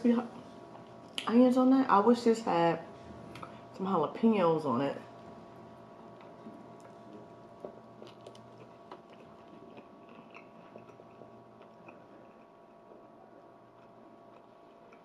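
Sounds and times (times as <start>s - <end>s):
faint chewing: 6.0s - 15.0s.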